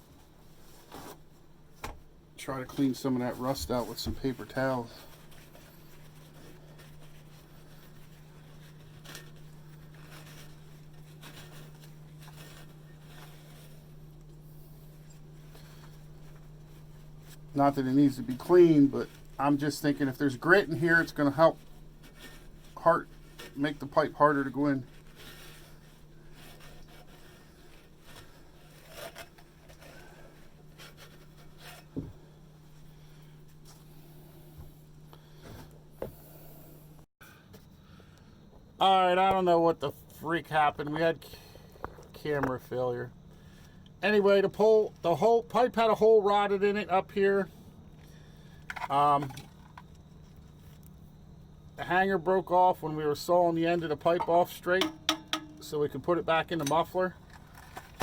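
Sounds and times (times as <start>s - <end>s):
paper towels rustling and scraping: 0.0s - 36.0s
low steady hum: 0.0s - 58.0s.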